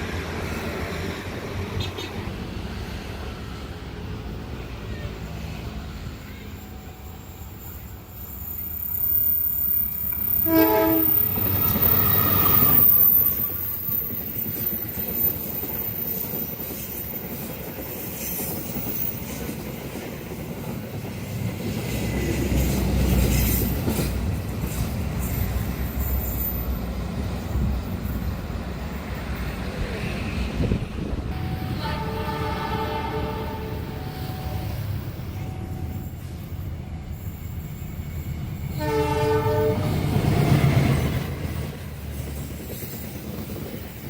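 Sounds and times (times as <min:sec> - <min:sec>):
train wheels rumbling on rails: 0:00.0 - 0:44.0
train horn: 0:10.4 - 0:12.5, 0:31.3 - 0:36.0, 0:38.7 - 0:40.2.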